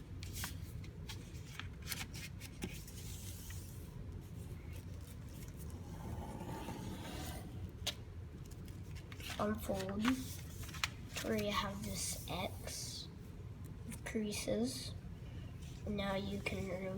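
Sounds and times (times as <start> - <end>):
paper rustling and crinkling: 0.2 - 3.8, 7.8 - 11.8.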